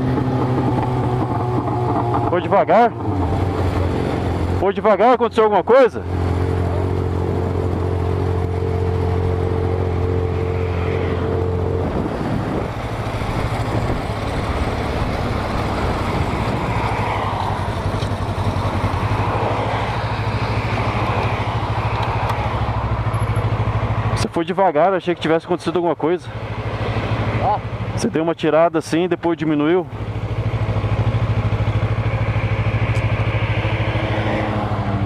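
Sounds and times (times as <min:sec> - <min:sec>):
motorcycle engine running: 0:00.0 - 0:35.0
rushing wind noise: 0:10.2 - 0:23.1.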